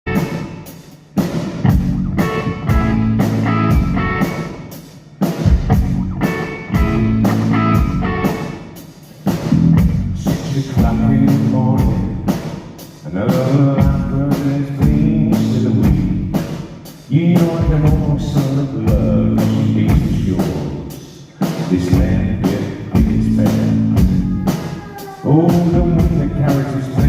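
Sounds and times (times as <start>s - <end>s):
drum beat: 0.1s - 27.0s
guitar chords: 1.7s - 4.7s, 5.7s - 8.6s.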